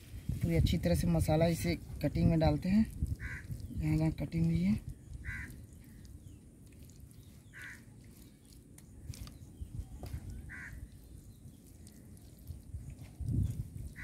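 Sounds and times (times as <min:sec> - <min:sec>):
bird calling: 0:05.2 - 0:06.2, 0:07.4 - 0:08.3, 0:10.3 - 0:11.0.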